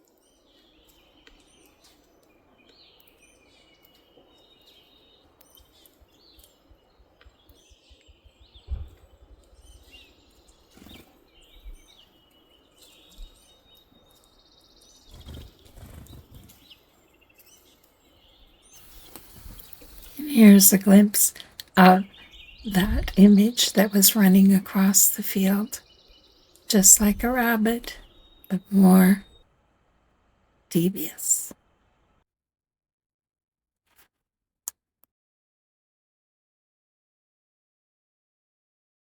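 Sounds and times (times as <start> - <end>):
small birds chirping and trilling: 0.0 - 29.4.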